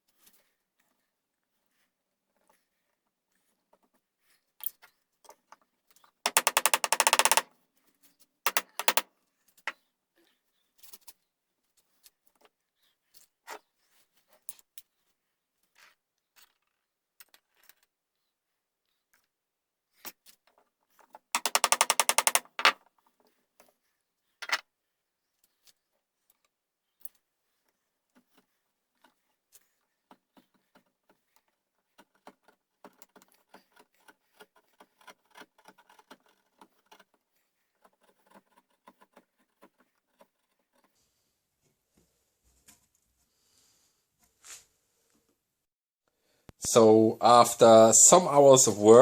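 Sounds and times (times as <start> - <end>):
sharp taps and clicks: 6.3 - 7.4, 8.5 - 9.0, 21.4 - 22.8
tool scraping wood: 6.3 - 7.4, 8.5 - 9.0, 21.4 - 22.8.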